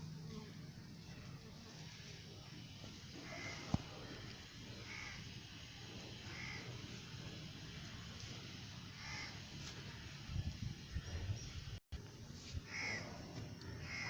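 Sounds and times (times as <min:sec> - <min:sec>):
bird harsh calls: 0:03.1 - 0:06.8, 0:08.9 - 0:10.1, 0:12.7 - 0:14.0.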